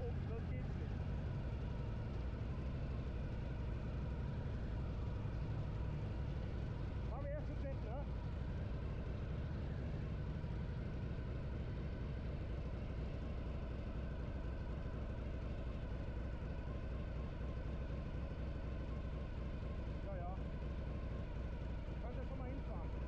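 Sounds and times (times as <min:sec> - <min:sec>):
motorcycle engine steady drone: 0:00.0 - 0:23.0.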